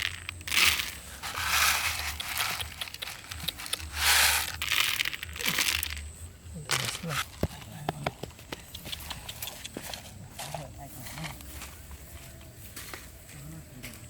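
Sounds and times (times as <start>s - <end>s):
dry material rustling and crunching: 0.0s - 6.1s.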